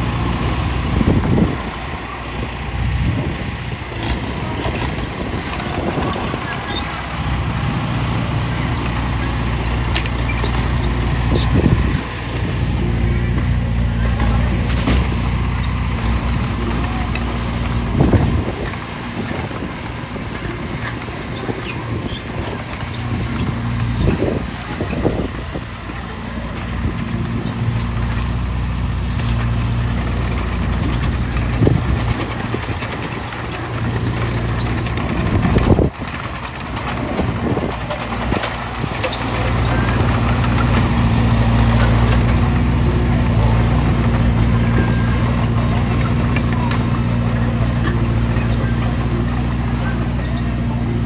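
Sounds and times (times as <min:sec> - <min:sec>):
heavy diesel engine running: 0:00.0 - 0:51.0
machinery clunks: 0:04.0 - 0:25.5.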